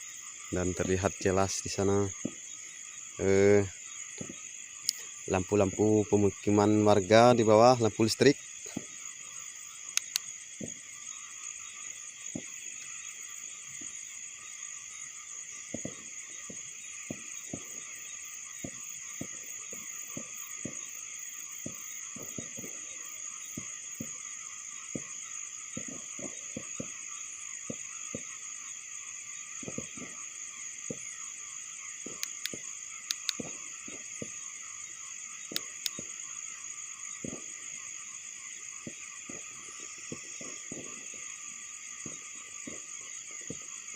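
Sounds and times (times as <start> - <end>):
crickets chirring: 0.0 - 43.9.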